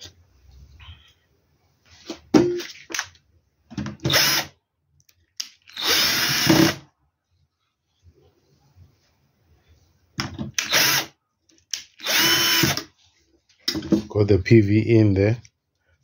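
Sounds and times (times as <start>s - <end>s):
cordless drill running: 4.1s - 4.5s, 5.7s - 6.8s, 10.6s - 11.1s, 12.0s - 12.8s.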